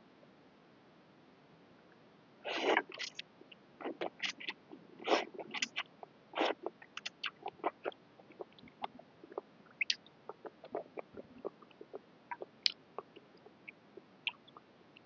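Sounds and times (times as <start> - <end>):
mouth clicks: 2.5 - 15.0
lip smacks: 2.6 - 13.5
wet chewing: 2.7 - 3.2, 3.8 - 13.5.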